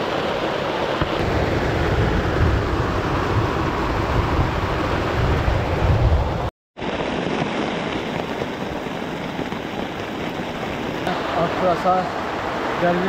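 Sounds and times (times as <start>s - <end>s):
heavy rain on a tent: 6.8s - 13.0s.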